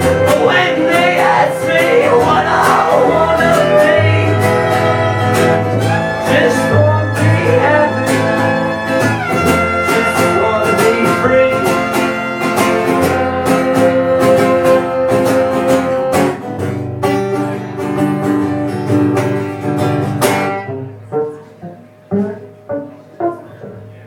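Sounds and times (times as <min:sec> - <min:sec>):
band playing bluegrass guitar: 0:00.0 - 0:24.0
single plucked notes: 0:18.8 - 0:24.0.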